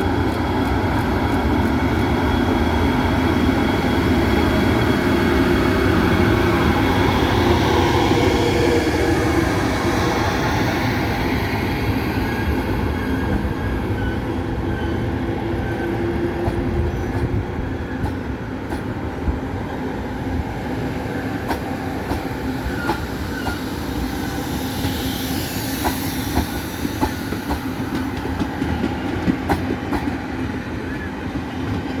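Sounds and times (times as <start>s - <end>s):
train rumbling: 0.0s - 32.0s.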